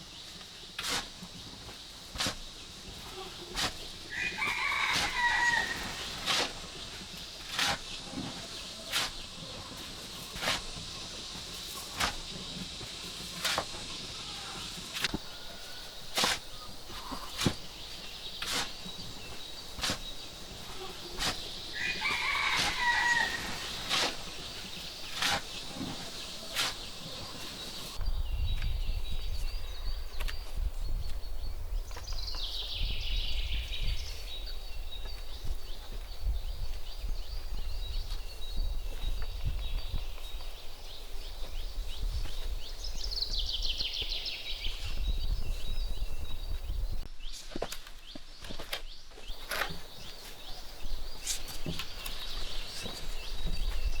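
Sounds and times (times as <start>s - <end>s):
rooster crowing: 4.1s - 6.1s, 21.7s - 23.9s.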